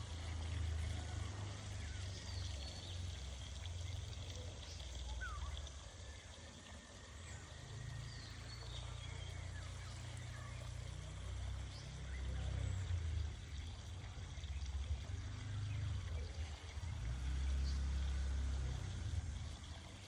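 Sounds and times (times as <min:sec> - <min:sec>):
low uneven rumble: 0:00.0 - 0:20.0
faint bird chirps: 0:01.8 - 0:13.0.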